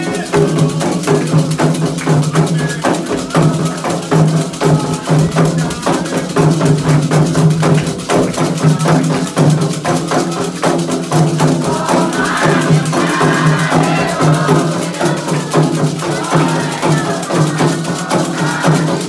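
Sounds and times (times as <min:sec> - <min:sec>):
hand drums playing fast rhythm: 0:00.0 - 0:19.0
people singing: 0:00.0 - 0:19.0
bell or wood block pattern: 0:08.6 - 0:19.0.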